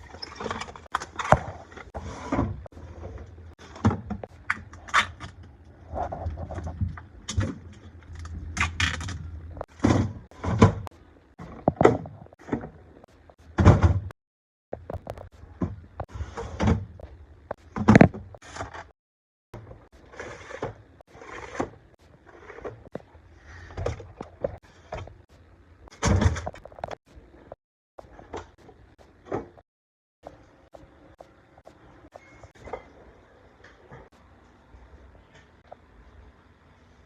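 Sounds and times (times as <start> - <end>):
refrigerator door knocks and clunks: 13.6 - 14.1.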